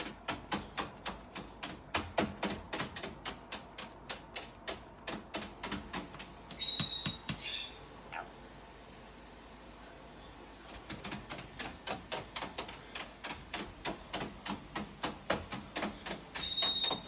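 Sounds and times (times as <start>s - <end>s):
rapid sharp tapping: 0.0s - 7.4s, 10.7s - 17.0s
parrot whistle: 6.6s - 7.8s
parrot chirp: 6.6s - 8.3s.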